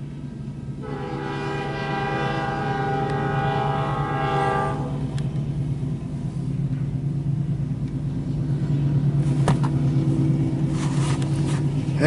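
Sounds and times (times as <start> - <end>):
train rumbling past: 0.0 - 12.0
locomotive air horn chord: 0.8 - 5.1.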